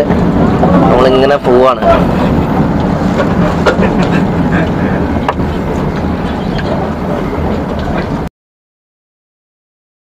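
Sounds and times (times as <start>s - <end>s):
miniature train rumbling on track: 0.0s - 8.3s.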